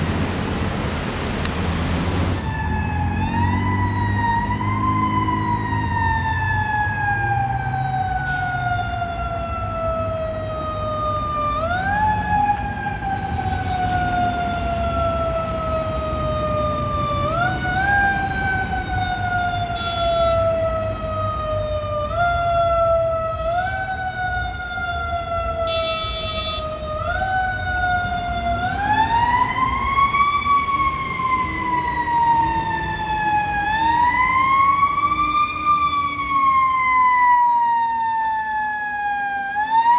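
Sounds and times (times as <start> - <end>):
heavy vehicle engine rumbling: 0.0 - 2.7
emergency vehicle siren wailing: 1.7 - 39.9.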